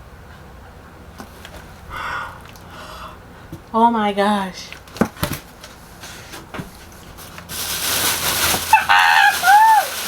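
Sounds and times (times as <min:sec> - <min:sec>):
packaging rustling hiss: 0:05.6 - 0:10.0.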